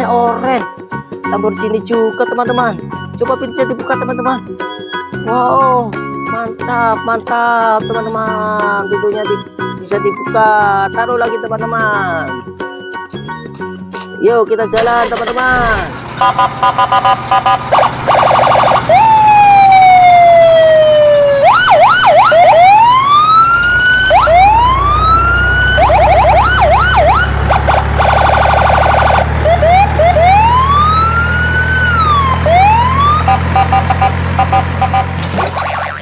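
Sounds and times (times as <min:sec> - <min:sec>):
electronic siren beeping and wailing: 0:16.2 - 0:36.0.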